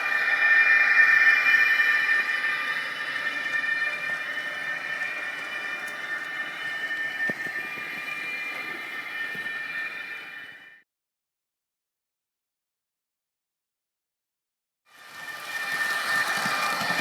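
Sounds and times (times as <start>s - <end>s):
high-speed train whine from speaker: 0.0s - 10.8s, 14.9s - 17.0s.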